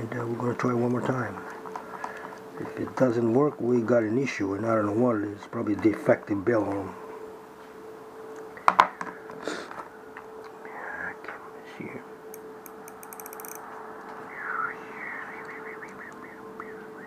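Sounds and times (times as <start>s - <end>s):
faint steady hum: 0.0s - 17.0s
small metal parts clicking: 12.7s - 13.6s.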